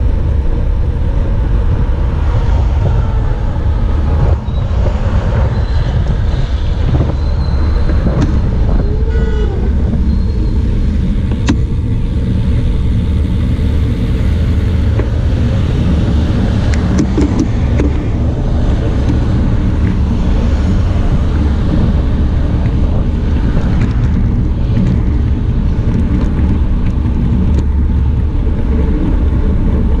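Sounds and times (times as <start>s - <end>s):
road traffic passing: 0.0s - 30.0s
wind on microphone: 0.0s - 30.0s.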